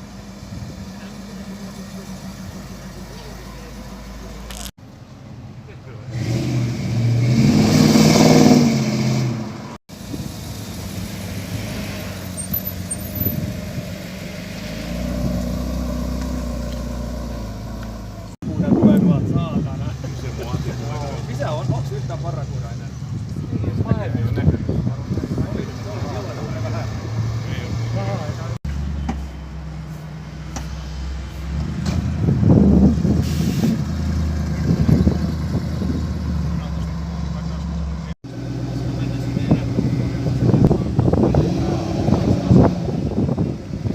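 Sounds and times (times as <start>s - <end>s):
car engine running: 0.0s - 4.7s
engine and road noise: 0.0s - 43.9s
car engine passing by: 6.1s - 18.4s, 19.9s - 43.9s.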